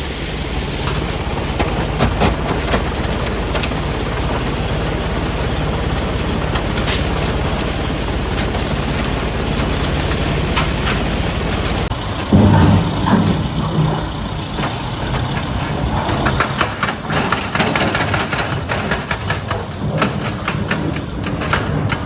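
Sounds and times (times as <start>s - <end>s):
stone-crushing machinery: 0.0s - 22.0s.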